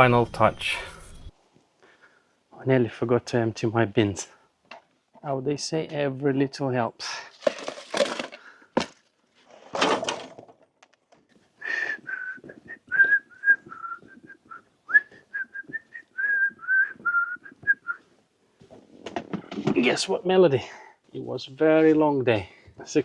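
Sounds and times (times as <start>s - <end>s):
rustling: 7.3s - 11.0s
person whistling a tune: 11.6s - 18.0s.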